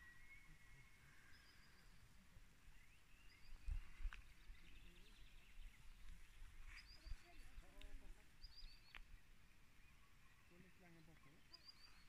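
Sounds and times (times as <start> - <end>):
faint birdsong: 0.0 - 12.0.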